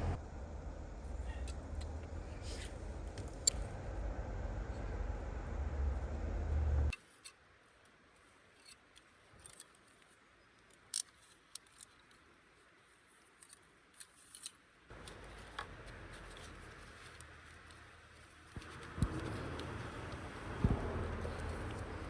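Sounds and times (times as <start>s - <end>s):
low steady hum: 0.0s - 10.7s, 11.3s - 22.0s
sharp clicks and light taps: 13.4s - 22.0s.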